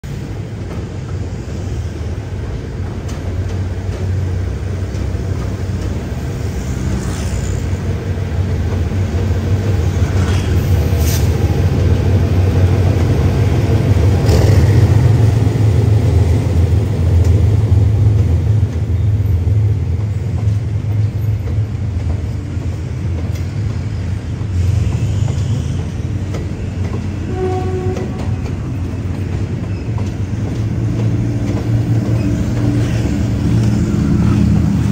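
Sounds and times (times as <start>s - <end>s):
coaches rolling on rails: 0.0s - 34.9s
locomotive engine rumbling: 7.5s - 34.9s.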